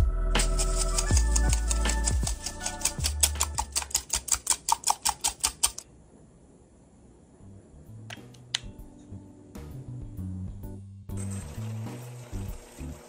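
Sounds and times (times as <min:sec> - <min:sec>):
hand whisk clicking against bowl: 0:00.5 - 0:05.8.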